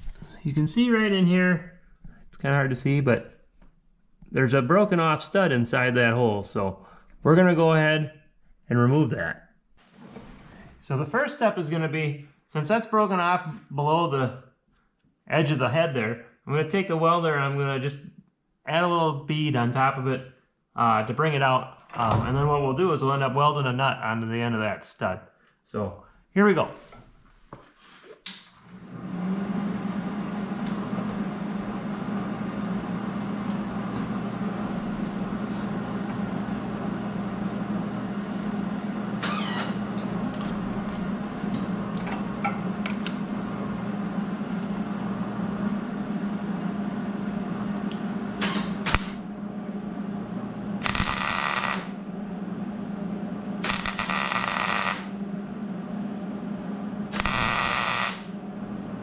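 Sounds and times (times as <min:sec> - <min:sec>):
electric welder buzzing and crackling: 0:48.4 - 0:49.3, 0:50.8 - 0:52.2, 0:53.6 - 0:55.2, 0:57.1 - 0:58.4.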